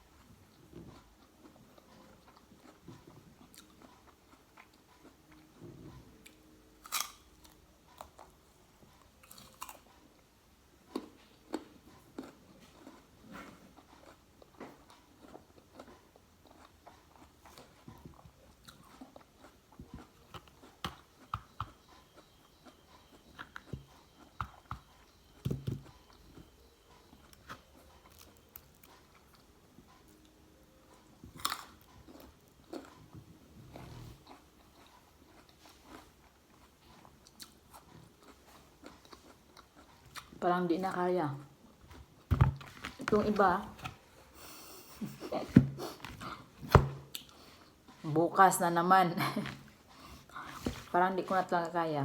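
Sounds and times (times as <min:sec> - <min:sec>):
crunchy biting and chewing: 0:06.8 - 0:08.3, 0:09.2 - 0:10.0, 0:31.3 - 0:33.1.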